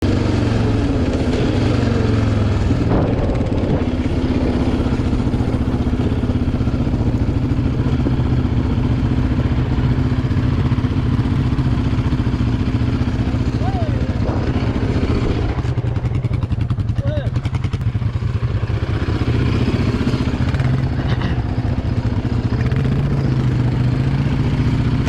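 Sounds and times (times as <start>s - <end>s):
atv engine running: 0.0s - 25.0s.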